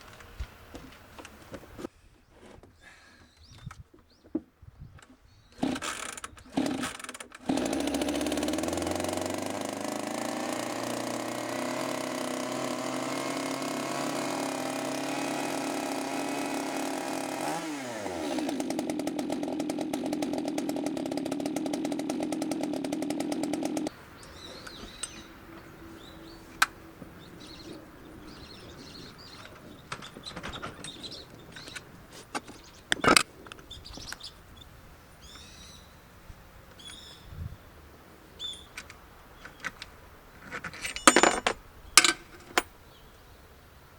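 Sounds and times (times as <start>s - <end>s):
chainsaw engine running: 5.6s - 24.0s.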